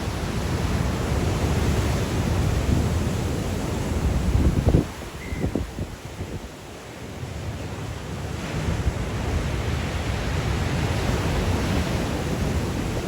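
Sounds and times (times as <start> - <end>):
waves breaking: 0.0 - 5.4, 6.0 - 13.0
wind buffeting microphone: 0.0 - 6.6.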